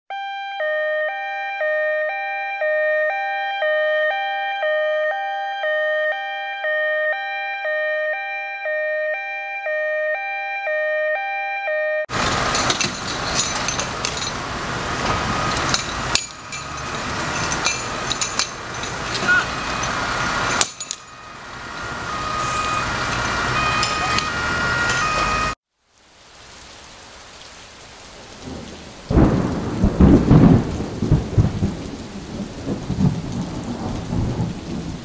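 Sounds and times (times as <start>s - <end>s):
two-tone emergency siren: 0.1s - 12.1s, 14.8s - 18.5s, 19.1s - 25.6s
knocks and clatter: 12.1s - 21.2s
loud outdoor noise: 12.1s - 25.6s.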